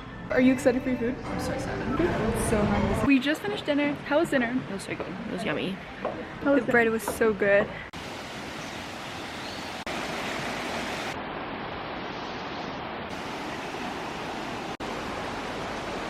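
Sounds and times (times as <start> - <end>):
rushing water: 7.2 - 16.0.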